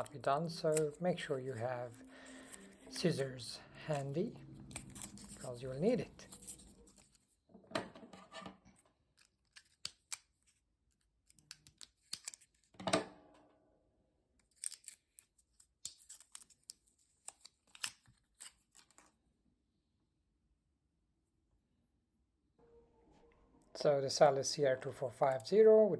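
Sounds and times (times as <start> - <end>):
scissors scraping plastic: 4.6 - 7.2.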